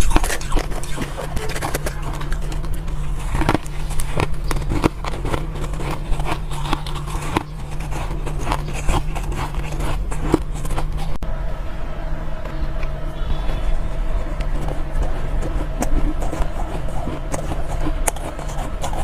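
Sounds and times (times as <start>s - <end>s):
crunching and chewing ice: 0.0s - 11.2s, 12.8s - 19.0s
low hum: 0.0s - 19.0s.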